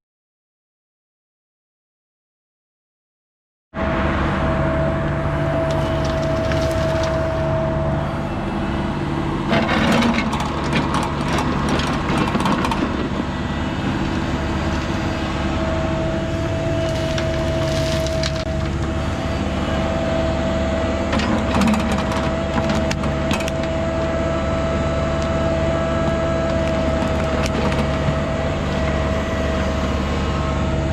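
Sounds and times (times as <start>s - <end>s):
excavator diesel engine whining: 3.8s - 30.9s
bucket digging soil crackling: 5.5s - 7.5s, 13.9s - 19.0s.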